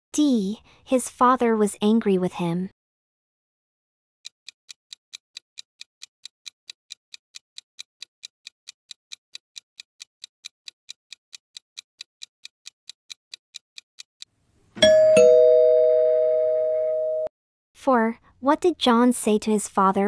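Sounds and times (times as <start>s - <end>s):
clock ticking: 4.2s - 14.2s.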